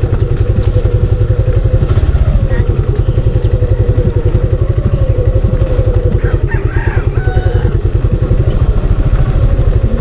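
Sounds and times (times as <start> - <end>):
motorcycle engine idling: 0.0 - 10.0
rooster crowing: 5.9 - 8.0.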